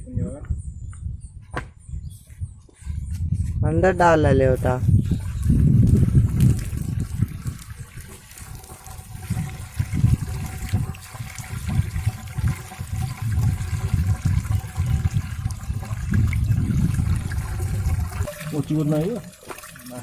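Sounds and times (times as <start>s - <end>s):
water rushing and splashing: 6.0s - 20.0s.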